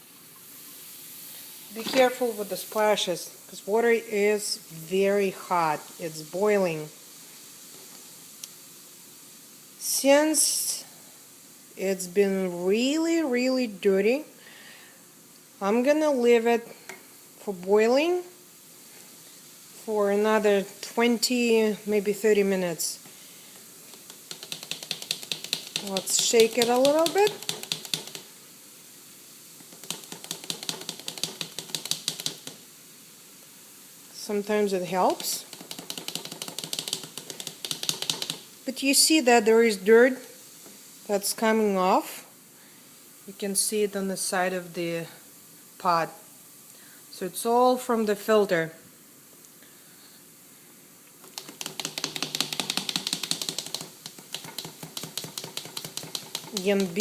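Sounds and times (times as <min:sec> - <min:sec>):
boiling water hiss: 0:00.0 - 0:57.0
metal filter rattling in boiling water: 0:23.9 - 0:28.3, 0:29.6 - 0:32.6, 0:34.9 - 0:38.6, 0:51.2 - 0:57.0.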